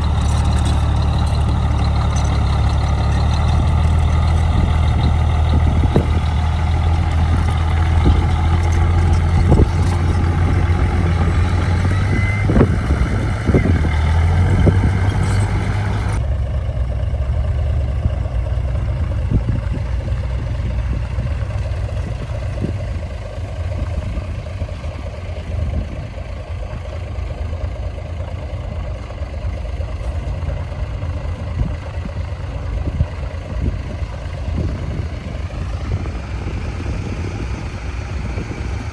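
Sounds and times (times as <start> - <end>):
knocks and clanks: 0.0 - 16.2
diesel machinery engine running: 0.0 - 38.9
thin engine running: 0.0 - 38.9.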